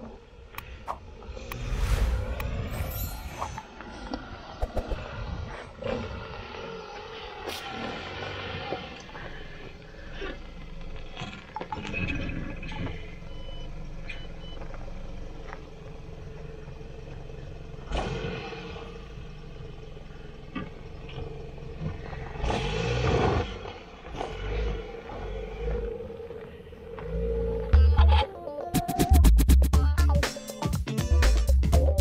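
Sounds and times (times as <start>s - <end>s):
car engine running: 4.4s - 28.2s.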